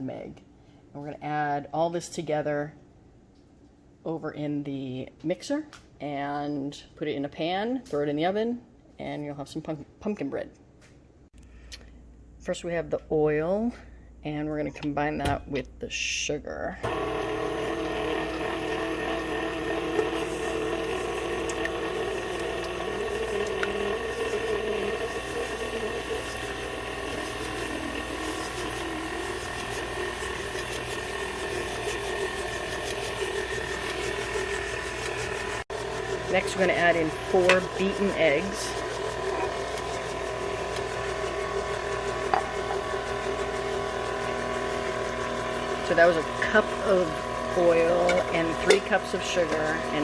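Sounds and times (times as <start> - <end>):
electric kitchen mixer whirring: 16.8 - 50.0.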